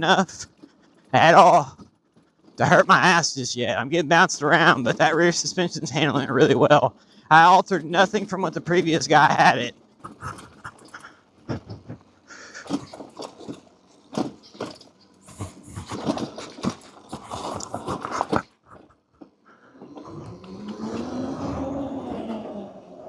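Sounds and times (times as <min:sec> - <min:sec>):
bike knocking and rattling: 0:09.8 - 0:19.3
electric motor whine: 0:19.7 - 0:23.0.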